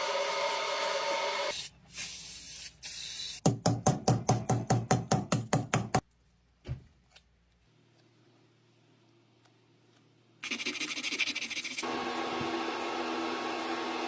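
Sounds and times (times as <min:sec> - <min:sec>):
spray paint hissing: 0:01.5 - 0:03.4.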